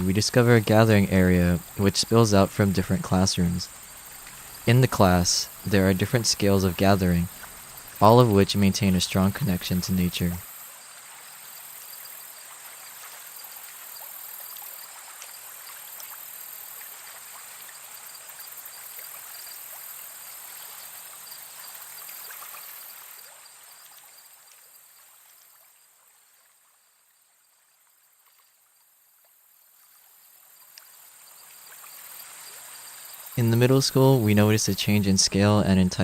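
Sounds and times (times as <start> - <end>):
running water: 0.0 - 26.6, 27.8 - 36.0
high insect drone: 0.0 - 34.8.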